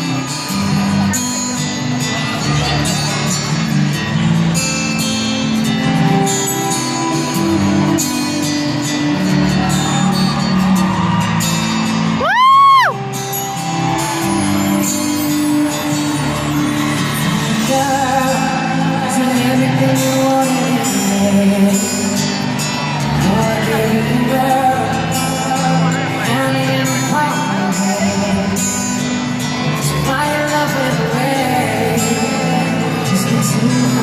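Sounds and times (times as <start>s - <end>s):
live pop music with singing: 0.0s - 34.0s
loud high whoop: 9.7s - 14.9s.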